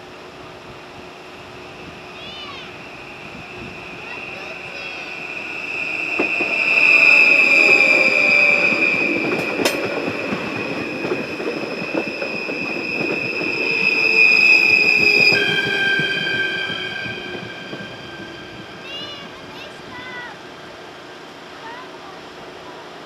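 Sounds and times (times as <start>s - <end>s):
train wheels clattering and squealing: 2.2s - 20.3s
crossing warning bells ringing: 2.6s - 20.3s.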